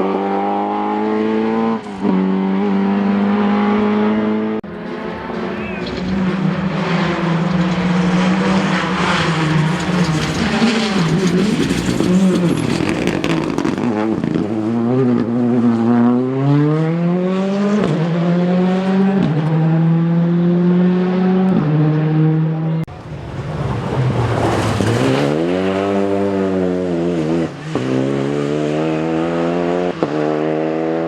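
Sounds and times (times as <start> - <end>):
rally car engine revving: 0.0 - 31.0.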